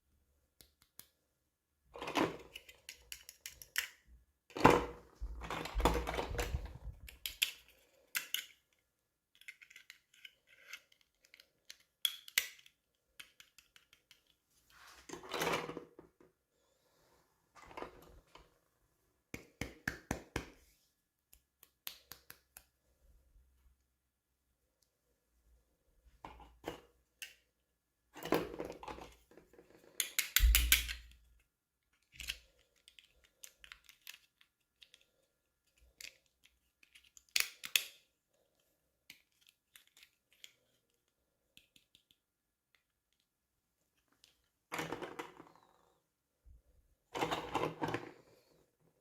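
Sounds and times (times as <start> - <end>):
small plastic clicks: 0.6 - 1.2, 2.4 - 4.0, 6.3 - 14.4, 30.0 - 38.1, 39.1 - 43.3.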